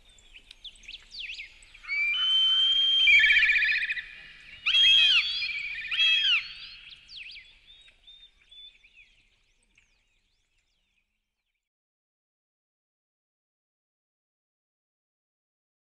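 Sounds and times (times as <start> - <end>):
songbirds singing: 0.0 - 11.6.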